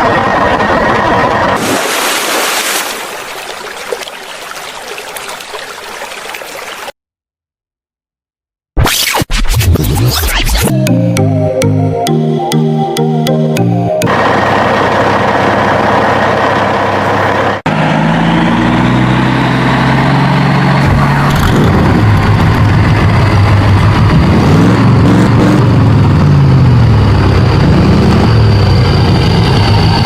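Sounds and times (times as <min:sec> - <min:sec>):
heavy truck engine revving: 0:14.0 - 0:30.0.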